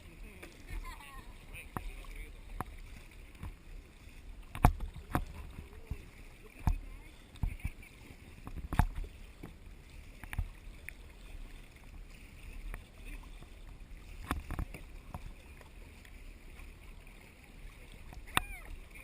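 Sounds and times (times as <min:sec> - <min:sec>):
water sloshing around kayak hull: 0:00.0 - 0:19.0
paddle knocking on kayak: 0:01.6 - 0:10.9.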